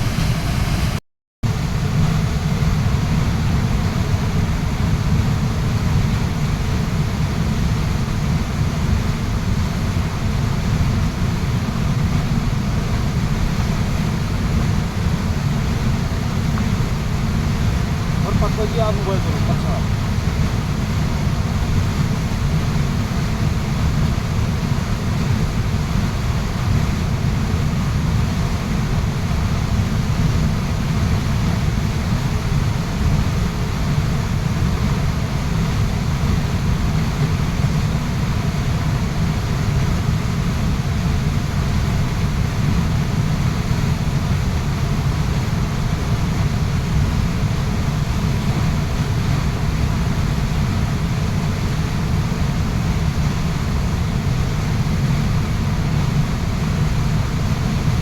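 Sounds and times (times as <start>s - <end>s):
waterfall rushing: 18.0s - 20.0s.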